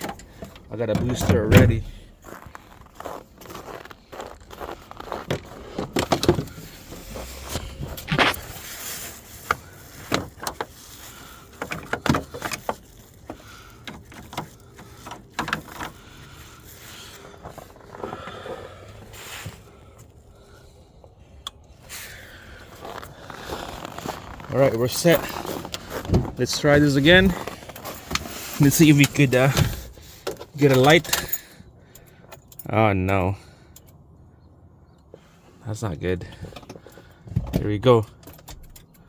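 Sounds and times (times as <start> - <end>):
cable clamps clicking and clattering: 11.4 - 16.2.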